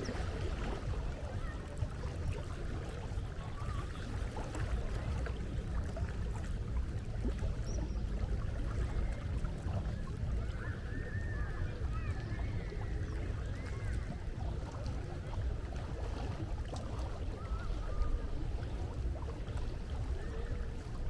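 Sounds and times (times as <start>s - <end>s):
steady low rumble: 0.0s - 21.0s
gulls calling: 7.2s - 16.0s, 17.1s - 21.0s.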